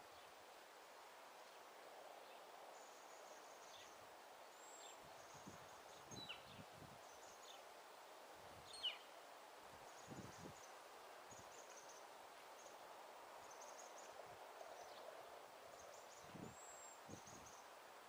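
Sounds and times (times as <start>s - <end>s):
steady outdoor hiss: 0.0s - 18.0s
small birds chirping: 2.3s - 7.7s, 8.6s - 9.2s, 9.8s - 12.8s.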